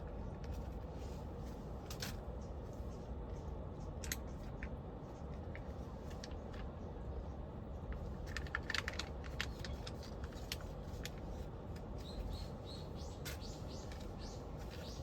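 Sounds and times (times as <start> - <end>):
small bird chirping: 12.0 - 15.0.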